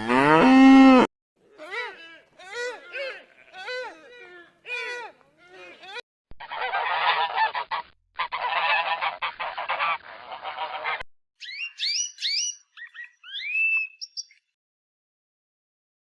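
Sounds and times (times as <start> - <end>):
geese honking: 6.4 - 11.0
high rising whistled calls: 11.4 - 14.4.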